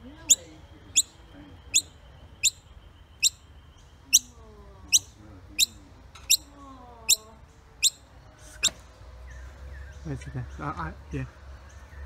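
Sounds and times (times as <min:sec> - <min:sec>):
baby bird chirping: 0:00.1 - 0:08.8.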